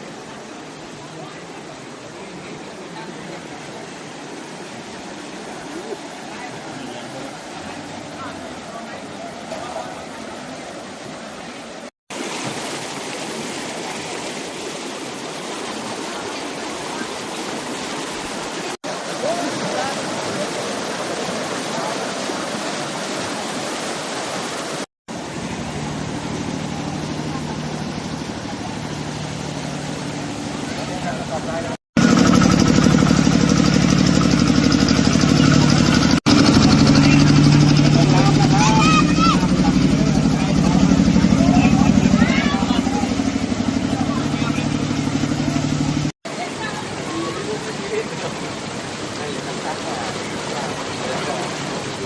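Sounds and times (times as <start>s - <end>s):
floodwater rushing: 0.0s - 52.0s
engine running with pulsing beat: 25.2s - 46.1s.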